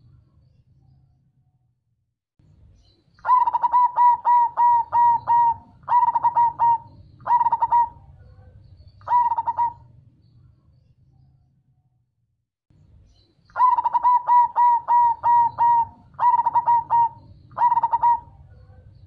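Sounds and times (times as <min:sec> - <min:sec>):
dove cooing: 0:03.2 - 0:09.9, 0:13.5 - 0:19.0.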